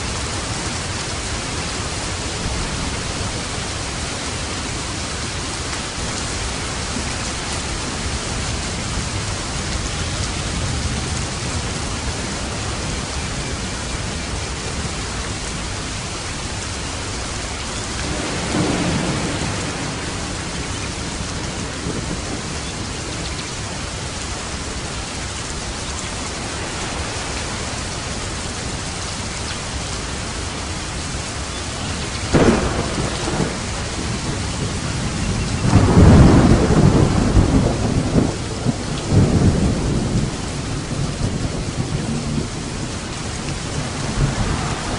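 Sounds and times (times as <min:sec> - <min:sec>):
heavy rain: 0:00.0 - 0:44.9
sharp thunderclap: 0:18.0 - 0:22.5, 0:32.3 - 0:40.3, 0:43.6 - 0:44.9
thunder rolling: 0:18.0 - 0:23.2, 0:32.3 - 0:44.9.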